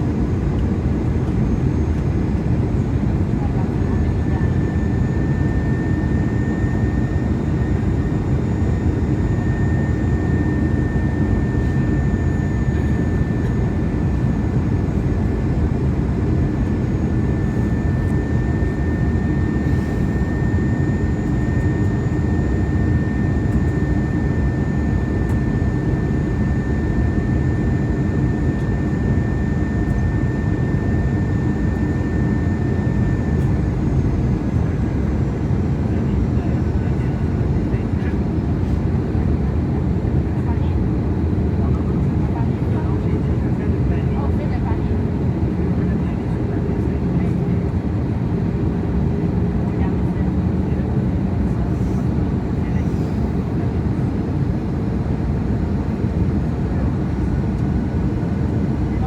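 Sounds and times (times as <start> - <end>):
jet engines humming: 0.1 - 40.2.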